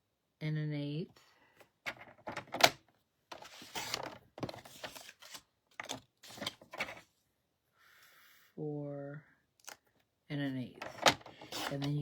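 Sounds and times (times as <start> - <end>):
paper rustling: 3.3 - 7.0, 10.8 - 12.0
paper trimmer blade scraping: 11.0 - 12.0.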